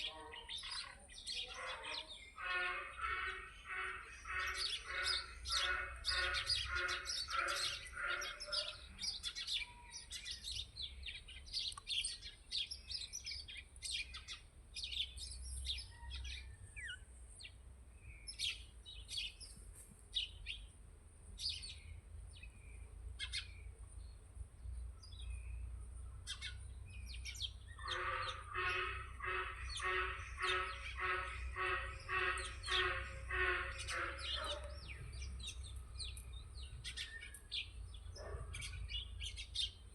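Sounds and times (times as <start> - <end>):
birds chirping: 0.0 - 39.9
fast repeated bird call: 1.6 - 8.8, 27.8 - 34.6.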